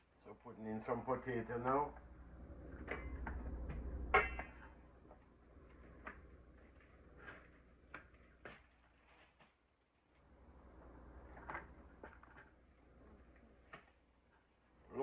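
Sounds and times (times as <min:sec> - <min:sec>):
low hum: 0:01.4 - 0:07.8.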